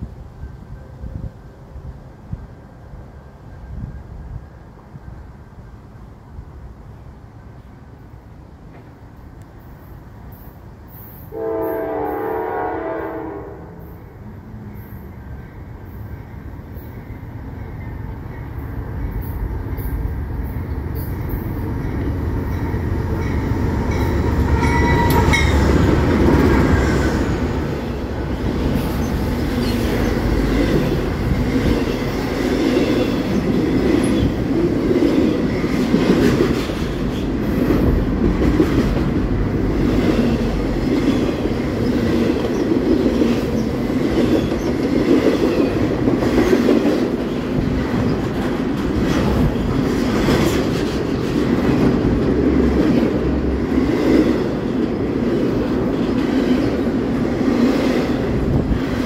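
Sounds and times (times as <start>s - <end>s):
freight train rumble: 0.0s - 59.0s
wheels clattering on rails: 16.7s - 59.0s.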